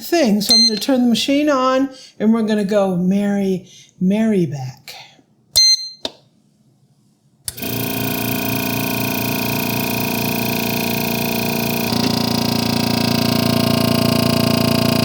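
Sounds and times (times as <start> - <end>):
vacuum pump running: 7.5 - 15.0.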